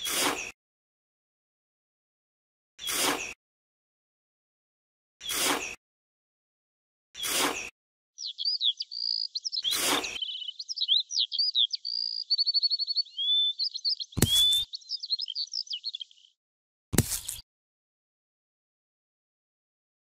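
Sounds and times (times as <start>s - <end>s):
trowel scraping into sand: 0.0s - 0.6s, 2.8s - 3.4s, 5.2s - 5.8s, 7.2s - 7.7s, 9.7s - 10.2s, 17.0s - 17.4s
songbird singing: 8.2s - 16.4s.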